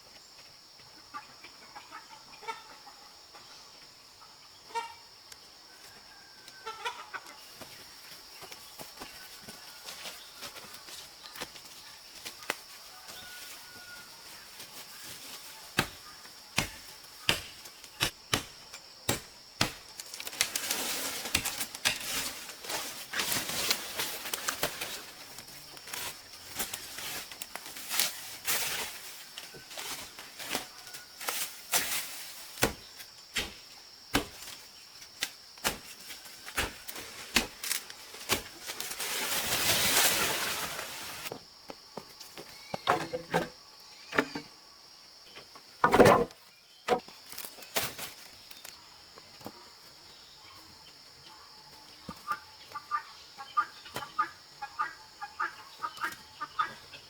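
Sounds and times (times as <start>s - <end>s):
scraping and rustling: 36.9s - 41.3s.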